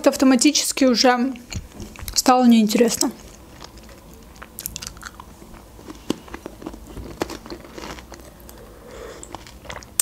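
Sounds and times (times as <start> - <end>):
chewing hard biscuit: 3.2 - 10.0.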